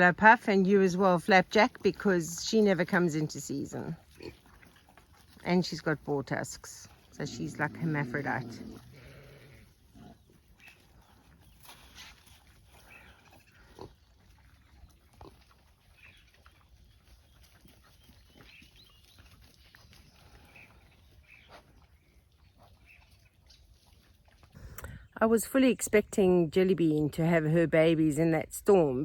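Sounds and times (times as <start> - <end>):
pigs grunting faintly: 3.9 - 5.4, 6.9 - 25.1.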